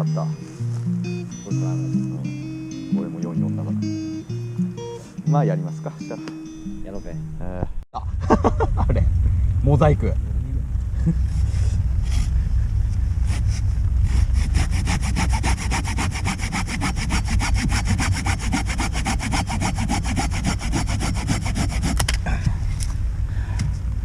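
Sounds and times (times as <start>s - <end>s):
wind rumble on microphone: 6.6s - 24.0s
hand saw cutting wood: 13.3s - 22.2s.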